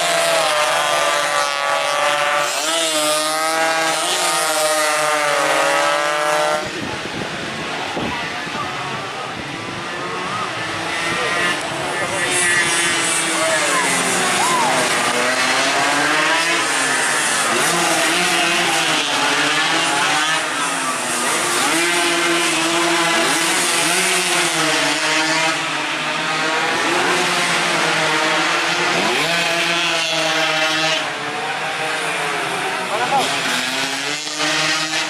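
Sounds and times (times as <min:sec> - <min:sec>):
racing motorcycle engines: 0:00.0 - 0:35.0.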